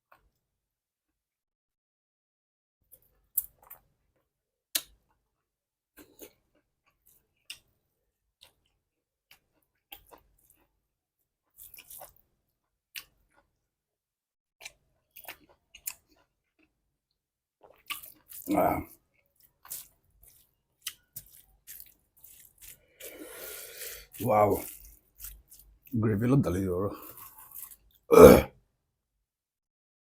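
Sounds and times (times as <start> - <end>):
person chewing food: 2.9 - 5.4, 6.0 - 7.8, 8.4 - 10.8, 11.4 - 13.6, 14.6 - 25.9, 26.9 - 28.1.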